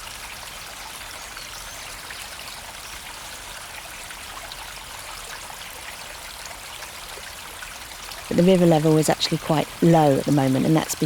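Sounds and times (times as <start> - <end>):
river flowing and trickling: 0.0 - 11.0.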